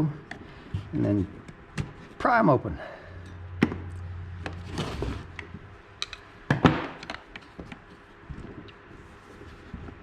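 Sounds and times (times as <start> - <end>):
tool scraping: 4.5 - 5.3.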